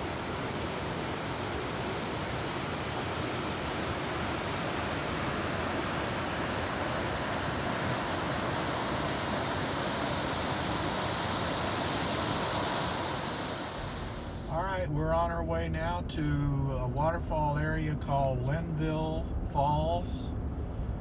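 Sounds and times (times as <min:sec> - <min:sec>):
waterfall rushing: 0:00.0 - 0:14.5.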